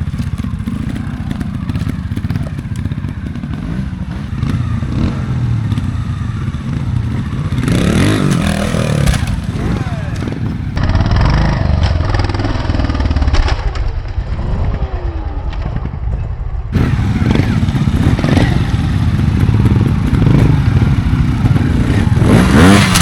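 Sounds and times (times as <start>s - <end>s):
motorcycle engine blipping throttle: 0.0s - 23.0s
motorcycle knocking over obstacles: 7.9s - 14.2s, 22.7s - 23.0s.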